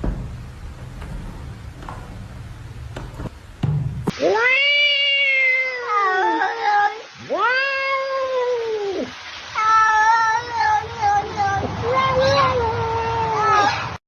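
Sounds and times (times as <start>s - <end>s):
cat meowing: 4.2s - 11.2s.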